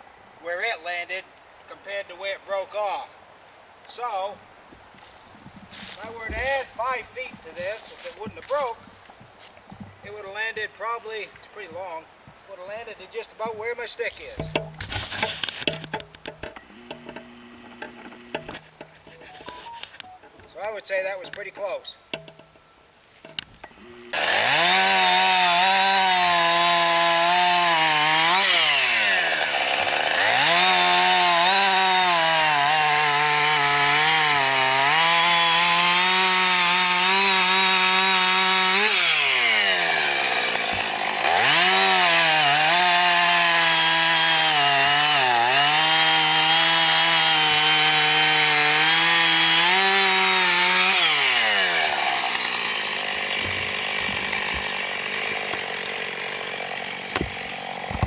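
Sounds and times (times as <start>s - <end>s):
chainsaw cutting log: 5.1s - 10.2s, 14.2s - 20.6s, 23.3s - 58.0s.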